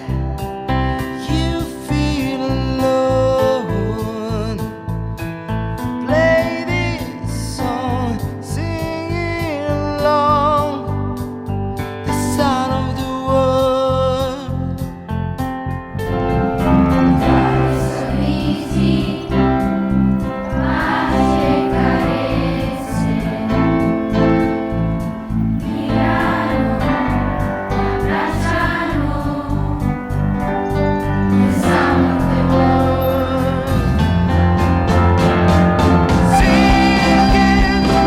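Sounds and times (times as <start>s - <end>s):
instrumental accompaniment: 15.4s - 38.0s
choir singing: 16.1s - 30.4s, 31.1s - 34.0s, 36.2s - 38.0s.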